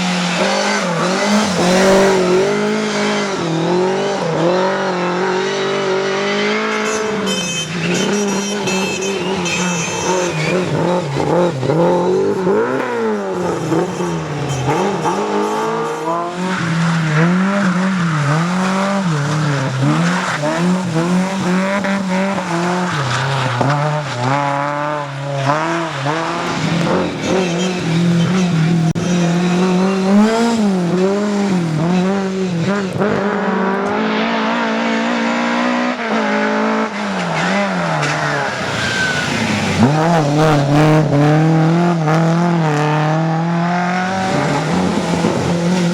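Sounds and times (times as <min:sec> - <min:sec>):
tyres squealing: 0:00.0 - 0:03.5, 0:06.7 - 0:33.1, 0:36.9 - 0:43.2
rally car engine revving: 0:00.0 - 0:45.9.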